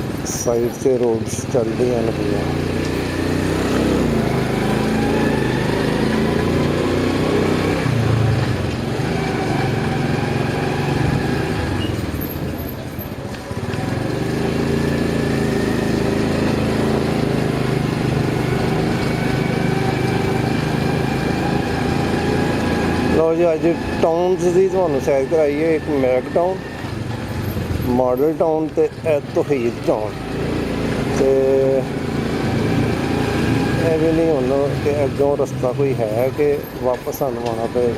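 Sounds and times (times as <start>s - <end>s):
motorcycle engine running: 0.0s - 37.9s.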